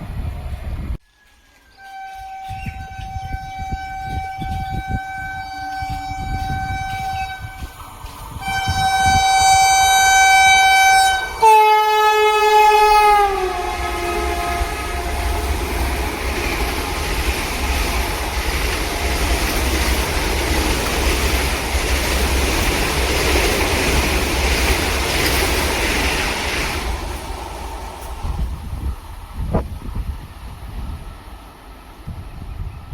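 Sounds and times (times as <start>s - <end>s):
train wagons rumbling by: 0.0s - 32.9s
locomotive horn blasts: 1.8s - 7.7s, 8.4s - 16.0s
rail clatter: 13.6s - 28.8s.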